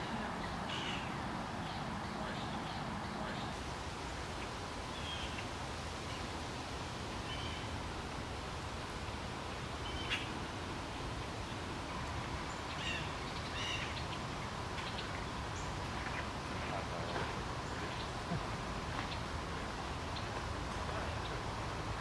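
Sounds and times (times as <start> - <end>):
small birds chirping: 0.0 - 6.3, 11.0 - 22.0
outdoor background noise: 0.0 - 22.0.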